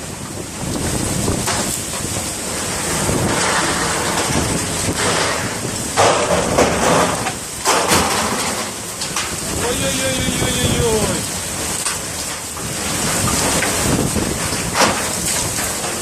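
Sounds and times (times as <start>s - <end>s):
hail: 0.0s - 16.0s
strong gusting wind: 0.0s - 16.0s.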